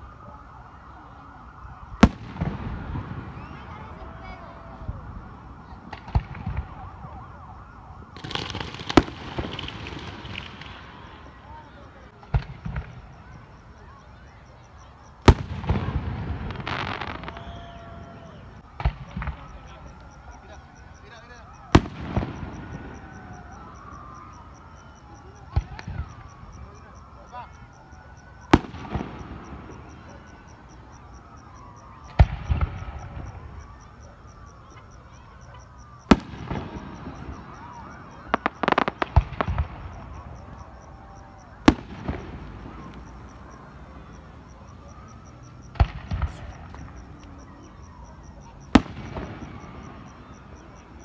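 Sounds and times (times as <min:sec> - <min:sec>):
firework whistles: 0:01.6 - 0:51.0
firework bangs: 0:02.0 - 0:07.3, 0:08.1 - 0:13.8, 0:15.2 - 0:27.6, 0:28.4 - 0:31.4, 0:32.0 - 0:33.8, 0:36.0 - 0:48.0, 0:48.6 - 0:51.0
firework pops: 0:05.9 - 0:06.9, 0:08.2 - 0:10.9, 0:12.2 - 0:13.1, 0:18.8 - 0:19.6, 0:38.3 - 0:40.2, 0:45.7 - 0:47.4
fireworks crackling hiss: 0:08.0 - 0:14.1, 0:15.1 - 0:20.3, 0:45.3 - 0:47.5.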